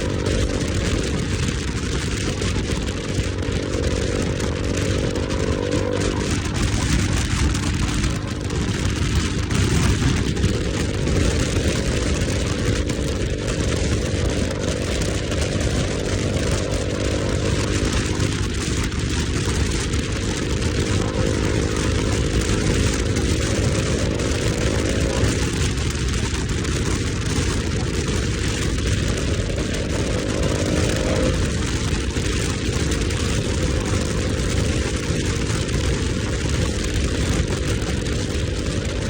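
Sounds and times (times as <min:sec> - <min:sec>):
motorcycle engine running: 0:00.0 - 0:39.0
wind noise on microphone: 0:00.0 - 0:39.0.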